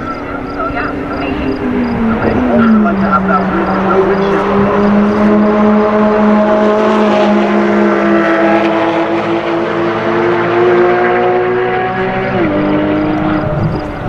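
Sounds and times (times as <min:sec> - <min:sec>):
low drone: 0:00.0 - 0:07.6
sports car engines accelerating: 0:00.0 - 0:14.0.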